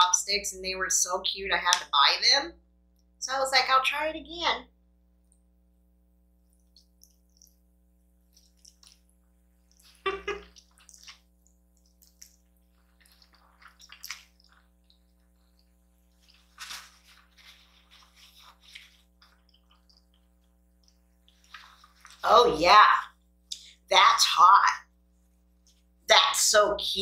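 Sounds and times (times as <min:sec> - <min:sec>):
wet noodle eating sounds: 0:06.4 - 0:22.3.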